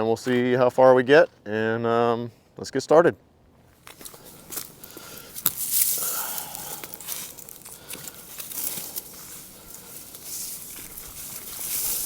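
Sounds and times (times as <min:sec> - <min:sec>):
dry leaves crackling and rustling: 0:03.8 - 0:12.0.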